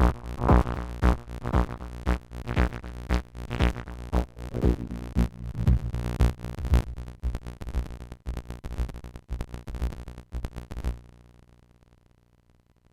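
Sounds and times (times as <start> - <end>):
synthesizer percussive hits: 3.6 - 7.5
sustained synthesizer tone: 4.2 - 7.2.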